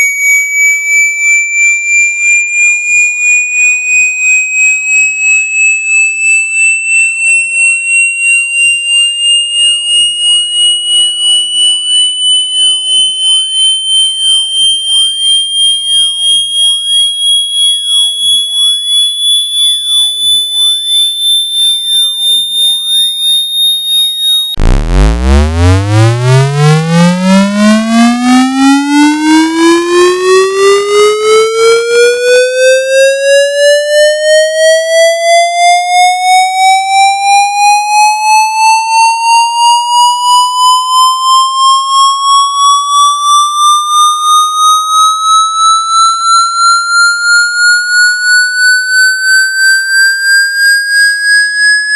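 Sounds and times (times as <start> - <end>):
high-pitched pulsing tone: 8.6 - 34.6, 36.5 - 51.9.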